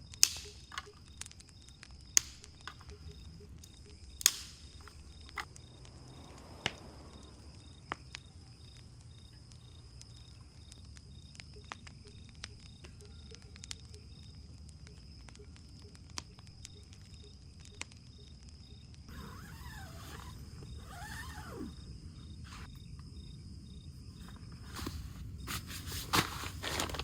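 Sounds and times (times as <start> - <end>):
sharp pops and clicks: 0.0 - 19.1
crickets chirping: 0.0 - 27.0.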